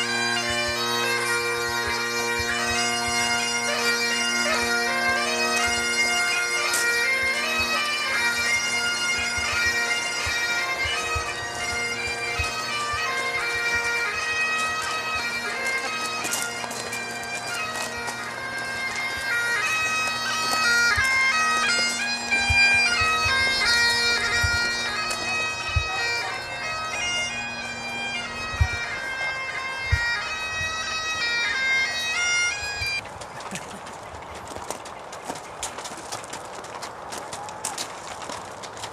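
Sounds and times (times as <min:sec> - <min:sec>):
bagpipes playing a tune: 0:00.0 - 0:34.7.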